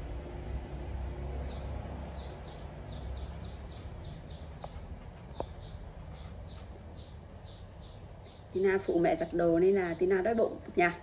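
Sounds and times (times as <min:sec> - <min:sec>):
small bird chirping: 0:00.3 - 0:11.0.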